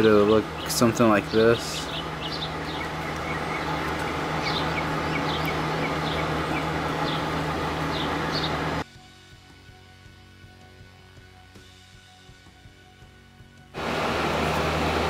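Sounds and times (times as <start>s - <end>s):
small bird chirping: 0.0s - 8.8s
low hum and hiss: 0.0s - 15.0s.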